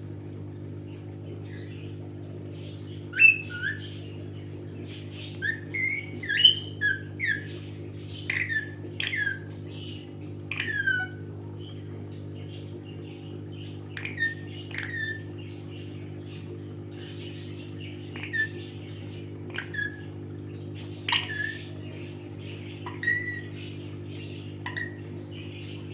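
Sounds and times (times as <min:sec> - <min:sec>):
steady low hum: 0:00.0 - 0:25.9
parrot squawking: 0:03.1 - 0:04.0, 0:05.3 - 0:07.5, 0:08.2 - 0:09.5, 0:10.5 - 0:11.2, 0:13.9 - 0:15.2, 0:18.1 - 0:18.7, 0:19.5 - 0:20.1, 0:21.0 - 0:21.8, 0:22.8 - 0:23.6, 0:24.6 - 0:25.0.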